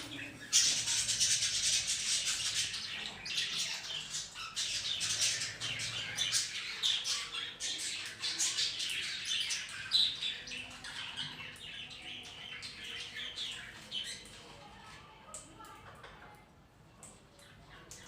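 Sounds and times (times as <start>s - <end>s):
budgerigars and parrot chattering: 0.0s - 14.2s.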